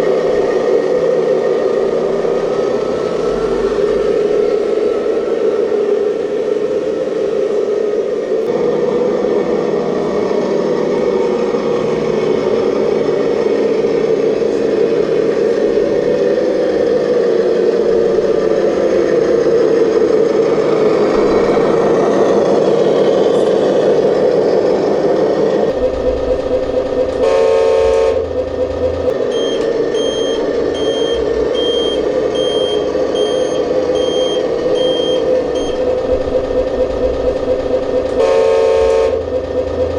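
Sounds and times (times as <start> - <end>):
simulated diesel engine running: 0.0 - 39.9
horn blast: 27.0 - 28.4, 38.1 - 39.4
reversing beeps: 29.2 - 35.9.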